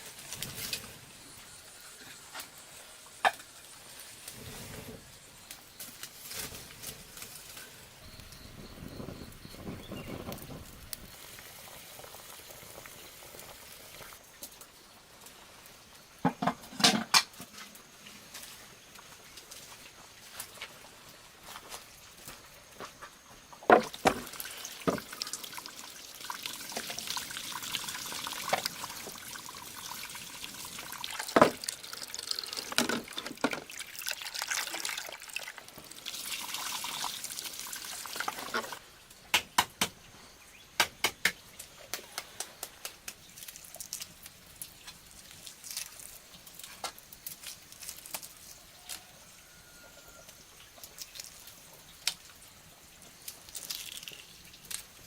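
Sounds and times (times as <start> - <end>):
water splashing and trickling: 23.7 - 39.1, 41.5 - 55.0.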